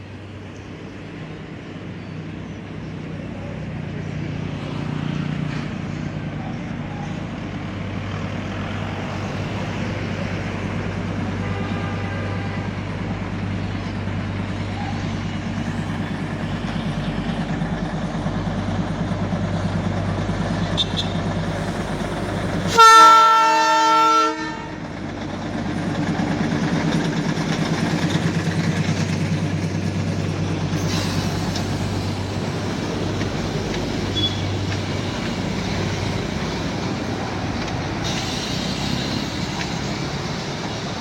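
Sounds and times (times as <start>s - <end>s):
train horn blast: 11.3s - 12.9s, 22.7s - 24.8s
rail clatter: 14.2s - 41.0s.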